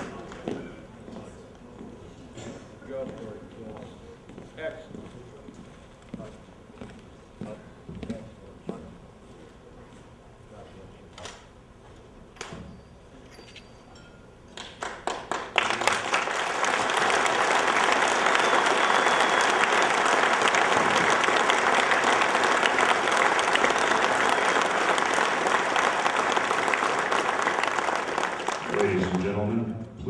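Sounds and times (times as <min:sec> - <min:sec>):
crowd applauding: 0:00.0 - 0:00.7, 0:14.5 - 0:29.6.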